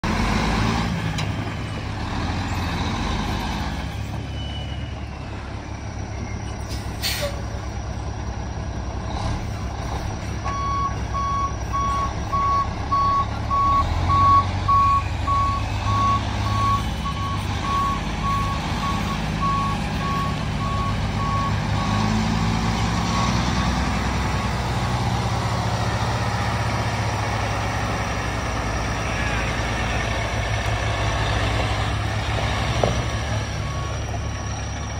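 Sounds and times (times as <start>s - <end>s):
diesel truck engine running: 0.0s - 34.9s.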